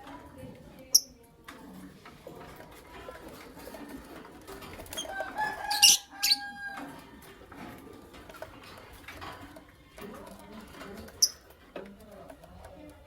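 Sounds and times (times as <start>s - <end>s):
lovebirds chirping: 4.9s - 6.6s.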